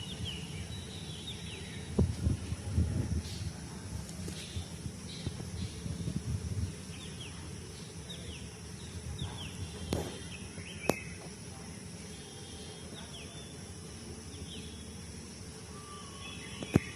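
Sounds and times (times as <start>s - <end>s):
low rumbling noise: 0.0s - 10.8s
small bird chirping: 4.3s - 11.3s, 15.7s - 16.9s.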